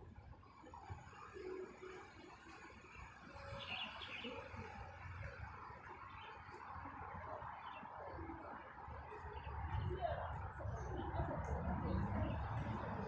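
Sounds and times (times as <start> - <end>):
bird chirps: 2.9 - 4.7.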